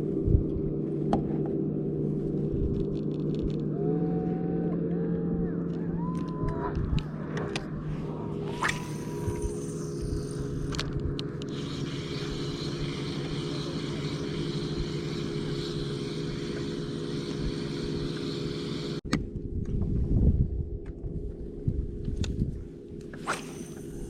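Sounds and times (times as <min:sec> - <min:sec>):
low rumble: 0:00.0 - 0:18.1
boat motor running: 0:00.0 - 0:19.0.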